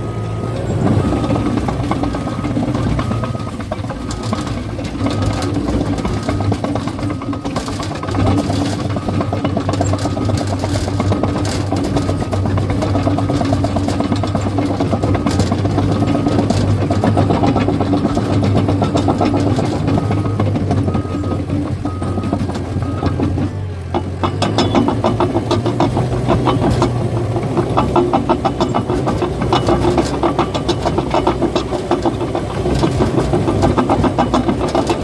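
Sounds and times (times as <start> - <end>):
backup alarm beeping: 0.0 - 13.2, 14.2 - 23.4
bulldozer diesel engine under load: 0.0 - 35.0
steel tracks clanking: 0.0 - 35.0.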